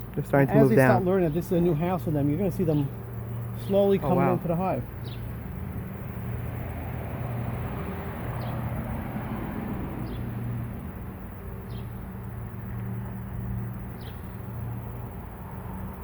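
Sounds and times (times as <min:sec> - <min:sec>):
bird chirping: 0:00.6 - 0:05.3.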